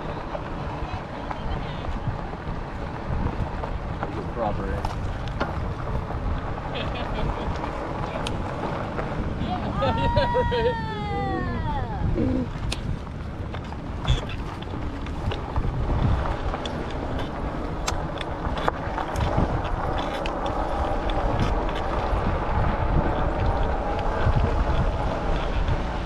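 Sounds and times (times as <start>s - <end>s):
steady low rumble: 0.0s - 26.0s
wind buffeting microphone: 0.0s - 26.0s
scattered ticks: 16.5s - 22.2s.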